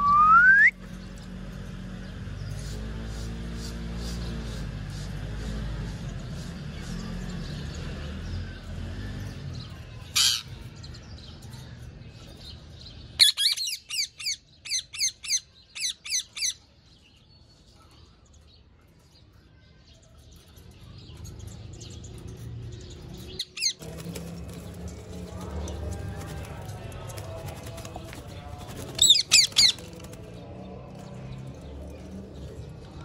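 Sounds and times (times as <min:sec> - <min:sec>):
parrot squawking and calling: 0:13.2 - 0:16.6.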